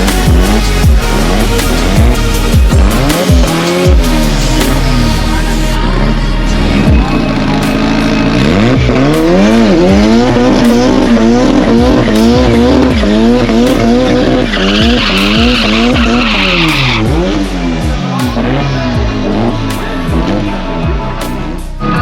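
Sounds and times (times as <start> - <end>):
car engine revving hard: 0.0 - 22.0
tyres squealing: 8.1 - 17.4.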